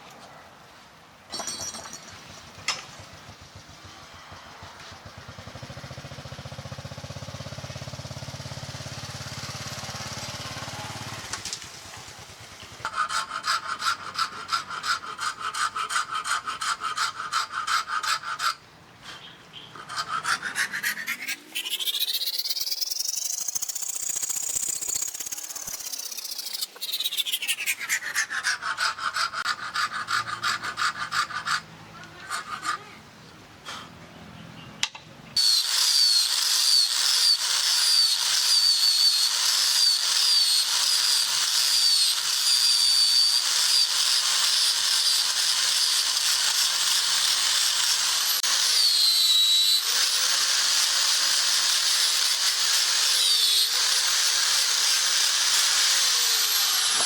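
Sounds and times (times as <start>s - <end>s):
electric power tool whining: 21.1s - 26.9s, 35.4s - 57.0s.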